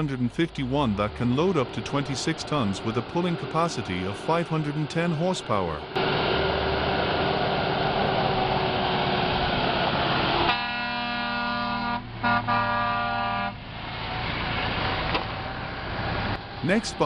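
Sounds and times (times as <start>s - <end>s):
truck engine running: 0.0s - 17.0s
truck horn blasts: 10.4s - 13.6s.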